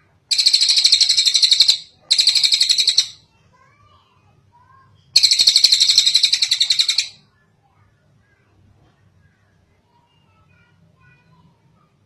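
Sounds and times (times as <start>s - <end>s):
bird singing buzzy trills: 0.3s - 3.2s, 5.2s - 7.2s
other birds chirping: 0.3s - 3.2s, 5.2s - 7.2s.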